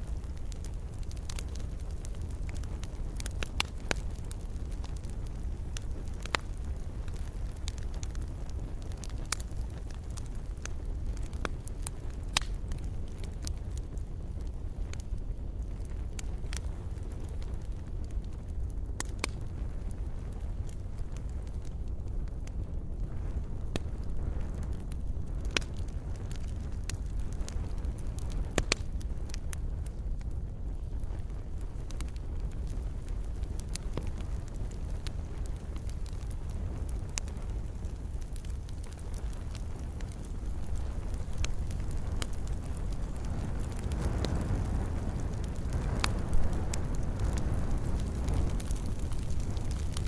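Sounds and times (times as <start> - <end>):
campfire flames rumbling: 0.0 - 50.0
wood crackling and popping: 0.0 - 50.0.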